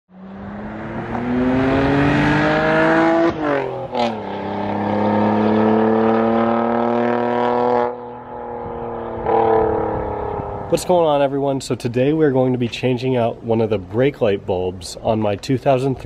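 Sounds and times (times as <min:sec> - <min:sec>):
car engine accelerating: 0:00.1 - 0:10.9.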